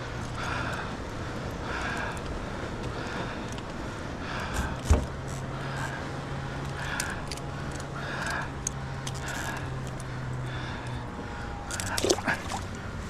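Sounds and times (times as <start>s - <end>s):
boat motor hum: 0.0s - 13.0s
water sloshing at kayak: 11.7s - 12.8s.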